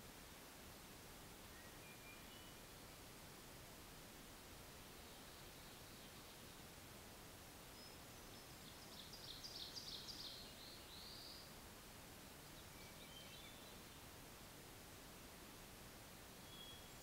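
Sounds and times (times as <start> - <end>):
microphone hiss: 0.0 - 17.0
songbird singing: 1.4 - 3.0, 4.8 - 6.8, 7.6 - 11.6, 12.3 - 14.2, 16.4 - 17.0.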